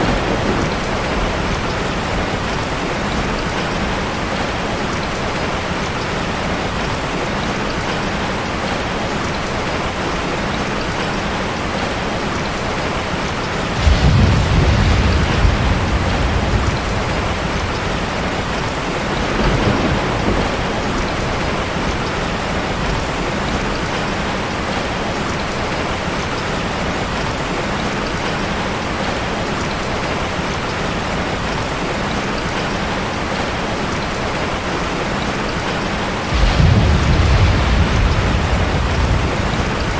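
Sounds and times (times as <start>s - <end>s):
thunder rumble: 0.0s - 5.5s, 13.2s - 24.8s, 36.1s - 39.9s
heavy rain: 0.0s - 39.9s.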